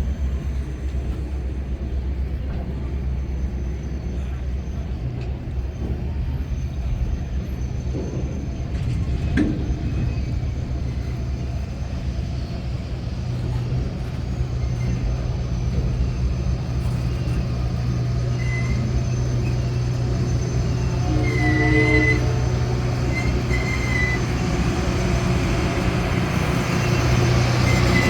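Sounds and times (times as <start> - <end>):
train rolling past rumble: 0.0 - 28.0.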